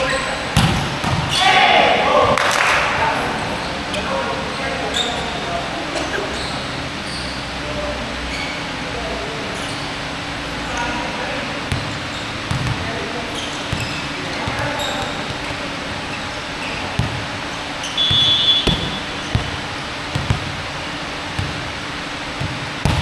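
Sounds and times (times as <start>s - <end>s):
basketball bouncing on court: 0.5s - 1.4s, 11.6s - 23.0s
high squeak: 17.7s - 19.4s.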